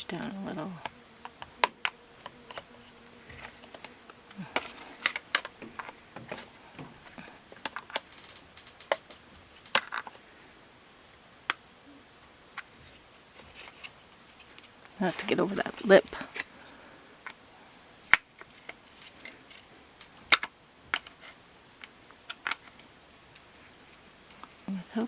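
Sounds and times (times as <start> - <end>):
plastic parts clicking and knocking: 3.3 - 10.2, 18.1 - 23.5.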